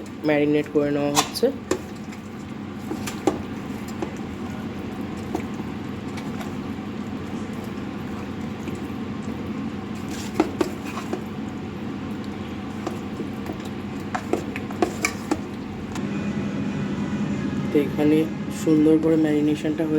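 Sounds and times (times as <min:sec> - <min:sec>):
wet squelching of mixing meat: 0:00.0 - 0:16.0.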